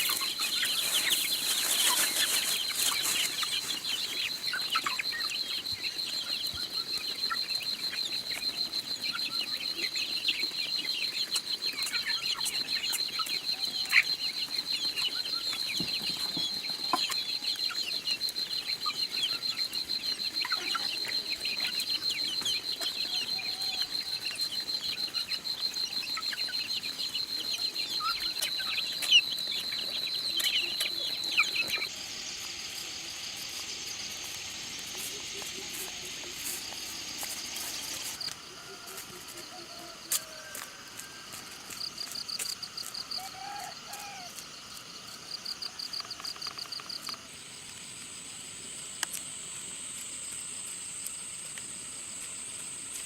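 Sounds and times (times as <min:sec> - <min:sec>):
chickens clucking: 0:00.0 - 0:40.7
steady hiss: 0:31.4 - 0:38.5.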